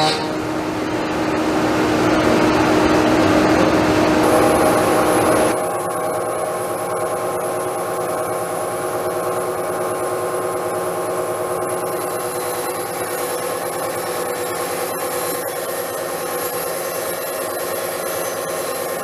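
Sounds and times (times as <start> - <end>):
power tool working wood: 0.0 - 0.4.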